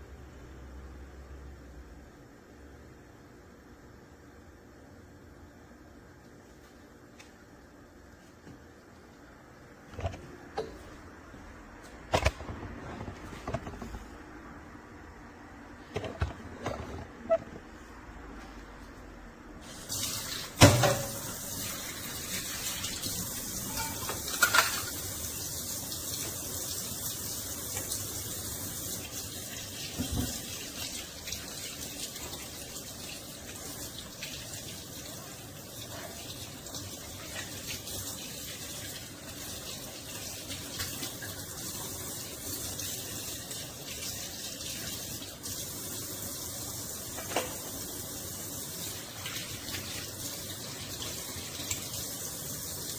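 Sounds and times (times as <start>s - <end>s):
running water hiss: 19.6s - 52.9s.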